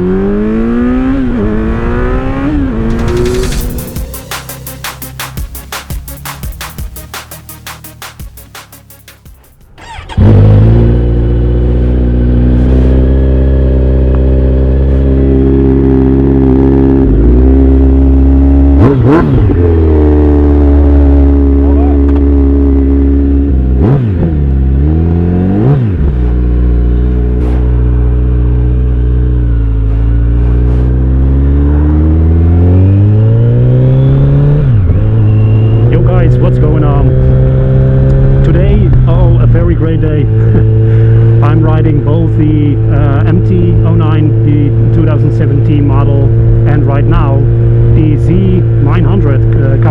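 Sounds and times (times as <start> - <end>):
motorcycle engine accelerating: 0.0 - 49.9
electronic music with a beat: 2.8 - 9.8
motorcycle engine idling loud: 2.8 - 12.3.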